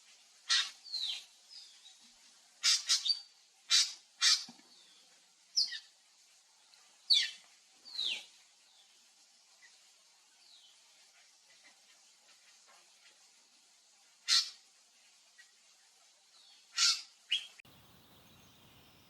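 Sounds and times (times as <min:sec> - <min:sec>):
drongo calling: 0:14.2 - 0:14.6, 0:16.7 - 0:19.0.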